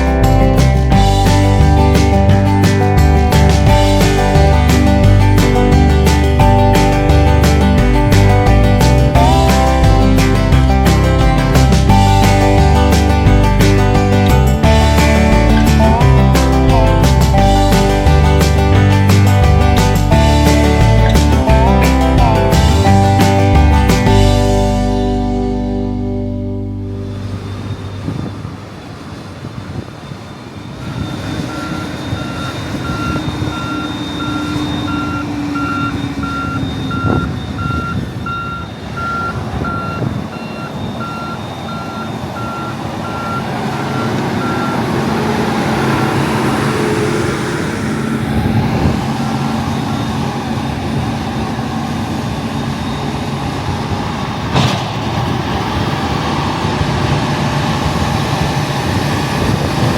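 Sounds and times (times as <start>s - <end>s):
diesel engines running: 0.0s - 59.9s
reversing alarm beeping: 25.1s - 54.6s.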